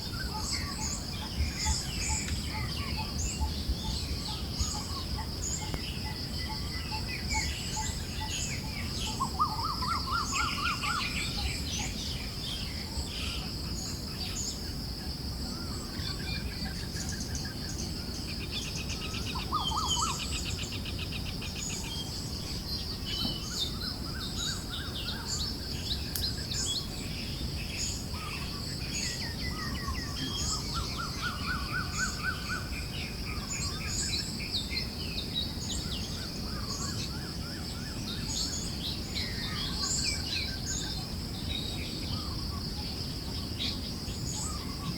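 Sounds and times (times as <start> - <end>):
birds chirping and trilling: 0.0 - 44.9.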